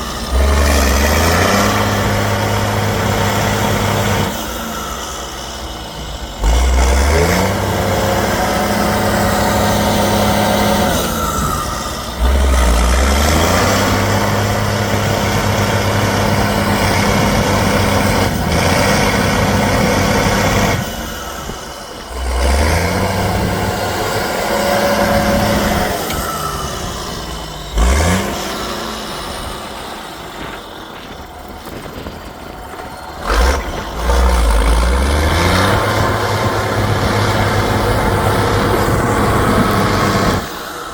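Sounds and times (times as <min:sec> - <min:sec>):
truck engine revving: 0:00.0 - 0:40.9.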